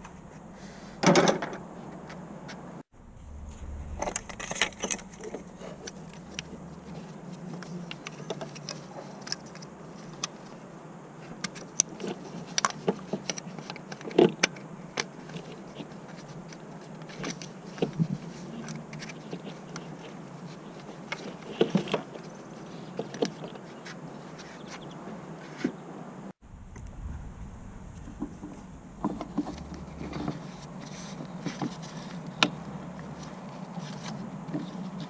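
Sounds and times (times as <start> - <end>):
low hum: 1.6 - 8.0, 26.4 - 30.7.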